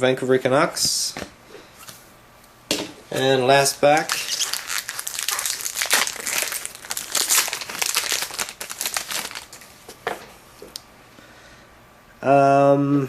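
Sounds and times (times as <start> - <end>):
wrapper tearing and crinkling: 3.6 - 9.8.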